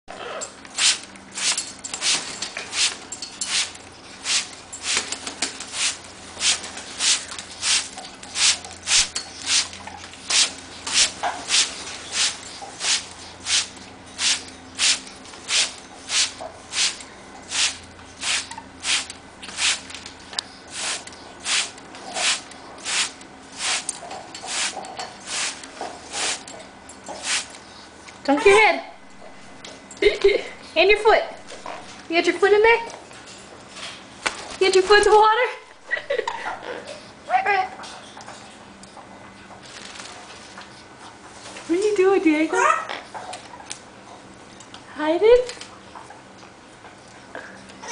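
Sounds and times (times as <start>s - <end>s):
water spraying in hissing bursts: 0.8s - 5.1s, 5.7s - 9.7s, 10.3s - 19.9s, 20.7s - 23.9s, 24.5s - 26.4s, 27.2s - 27.5s.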